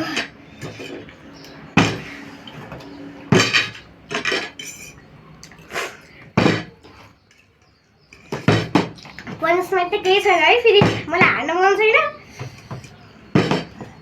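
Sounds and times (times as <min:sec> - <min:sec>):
plastic bottle clattering on hard surface: 0:03.3 - 0:04.6, 0:06.3 - 0:06.8, 0:08.2 - 0:09.4, 0:12.4 - 0:14.0.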